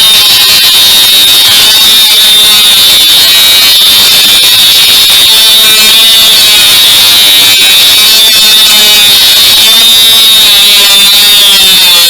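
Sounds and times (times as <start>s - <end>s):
angle grinder whine: 0.0s - 12.0s.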